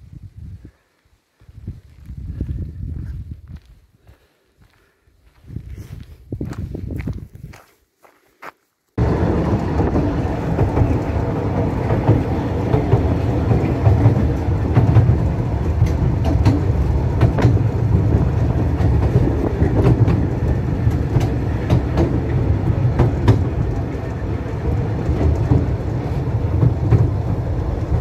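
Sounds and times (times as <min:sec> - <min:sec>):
train rumbling on track: 0:09.0 - 0:28.0.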